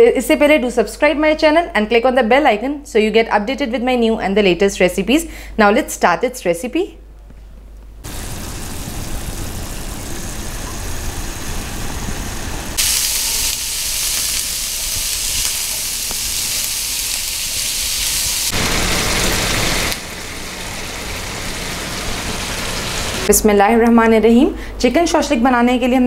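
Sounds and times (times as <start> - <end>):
vegetables sizzling in a hot pan: 8.1 - 11.3, 12.7 - 23.3.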